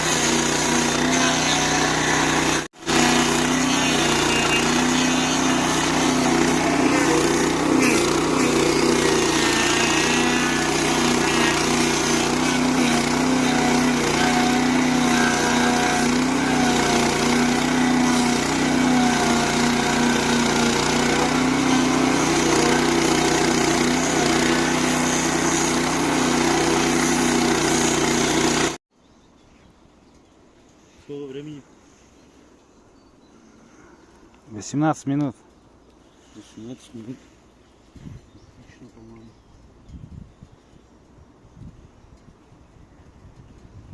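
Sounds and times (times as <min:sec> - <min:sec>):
petrol engine running: 0:00.0 - 0:28.8.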